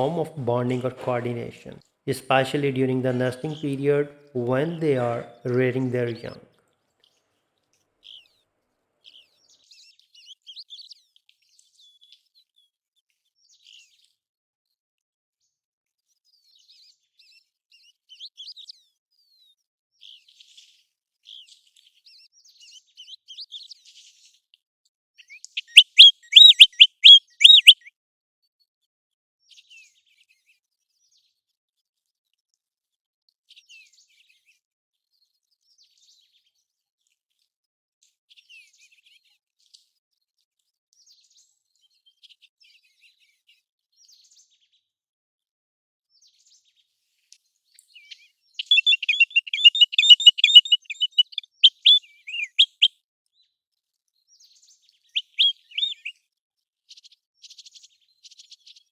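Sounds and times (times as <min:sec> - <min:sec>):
bird whistled calls: 0:25.6 - 0:27.9, 0:48.6 - 0:52.9, 0:55.2 - 0:56.1.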